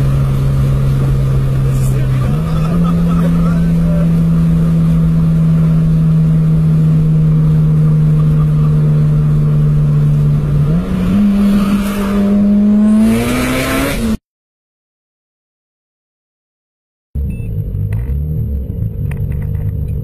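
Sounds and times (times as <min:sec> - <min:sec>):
car engine revving high: 0:00.0 - 0:14.2.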